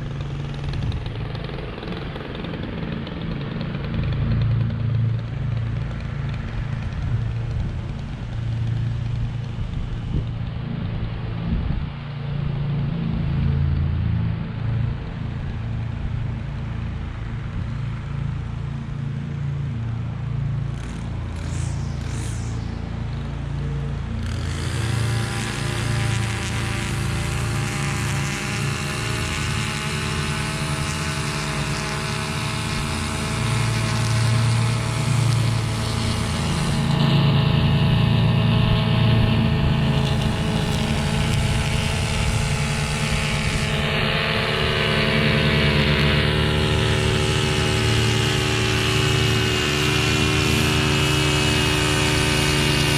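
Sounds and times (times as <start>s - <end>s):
mower engine running: 0.0s - 52.9s
hiss: 20.9s - 23.3s.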